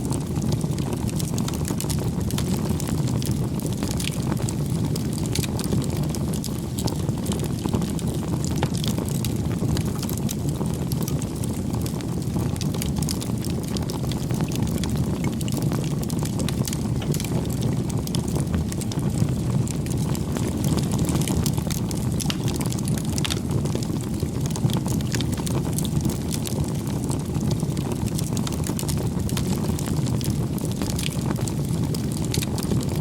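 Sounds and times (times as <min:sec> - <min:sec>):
fire crackling and popping: 0:00.0 - 0:33.0
low rush of flames: 0:00.0 - 0:33.0.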